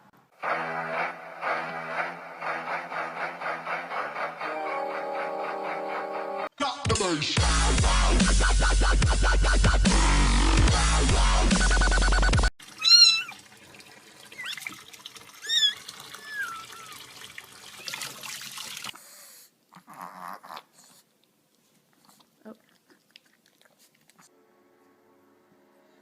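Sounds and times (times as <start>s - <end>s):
electronic dance music: 0.4s - 12.5s
cat meowing: 12.8s - 13.4s, 15.4s - 17.0s.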